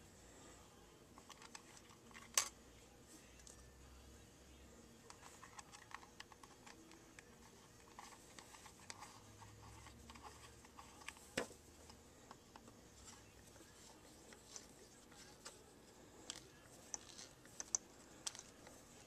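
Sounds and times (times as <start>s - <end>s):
small parts clicking and tapping: 1.2s - 2.5s, 5.1s - 13.2s, 16.2s - 18.8s.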